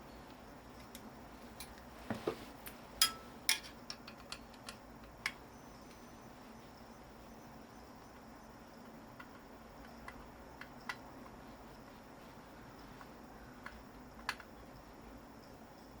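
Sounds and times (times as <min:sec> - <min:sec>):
metal tools clicking and knocking: 0:03.0 - 0:05.4.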